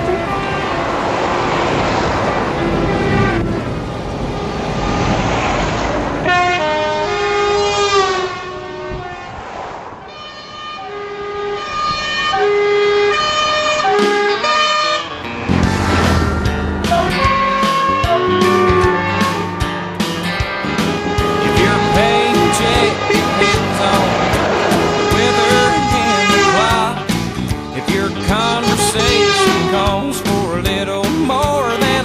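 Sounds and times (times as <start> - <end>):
musical air horn tune: 0.0 - 1.8, 10.1 - 27.6, 28.2 - 30.1
truck horns: 0.0 - 5.2, 6.0 - 9.4, 10.0 - 30.6, 31.5 - 32.0
engine noise: 0.0 - 30.6.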